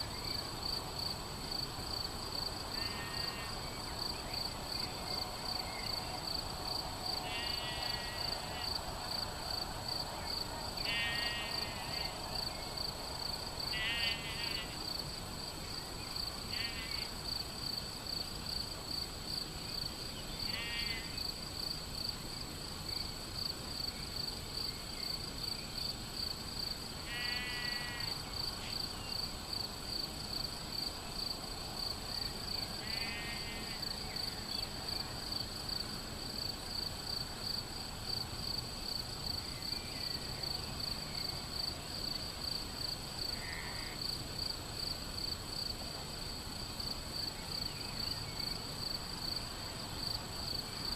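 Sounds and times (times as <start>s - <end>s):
crickets chirping: 0.0s - 50.9s
sheep bleating: 7.2s - 8.7s, 10.8s - 12.1s, 13.7s - 14.8s, 27.1s - 28.1s.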